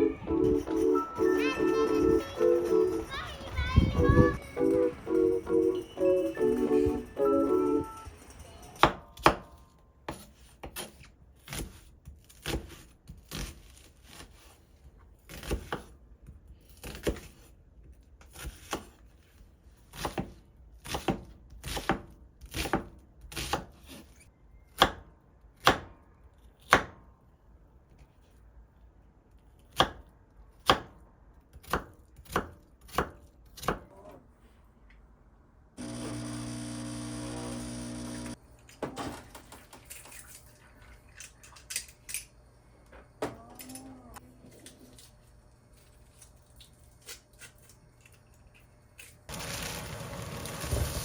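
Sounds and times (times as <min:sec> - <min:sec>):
knife chopping on cutting board: 0:29.7 - 0:31.0.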